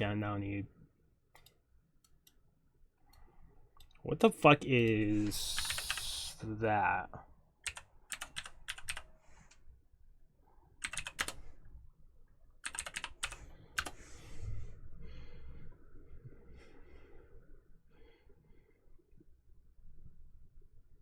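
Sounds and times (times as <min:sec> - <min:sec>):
computer keyboard typing: 0:05.2 - 0:06.3, 0:07.6 - 0:09.1, 0:10.8 - 0:11.5, 0:12.6 - 0:14.0.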